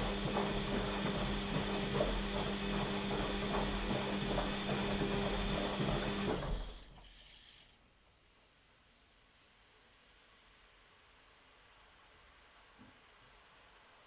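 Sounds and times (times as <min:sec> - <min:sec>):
washing machine drum motor humming: 0:00.0 - 0:06.9.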